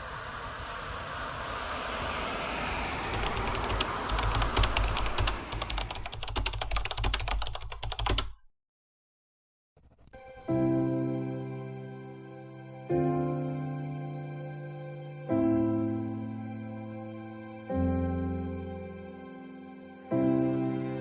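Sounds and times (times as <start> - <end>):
low rumble: 0.0 - 6.0
rapid sharp clicks: 3.1 - 8.4.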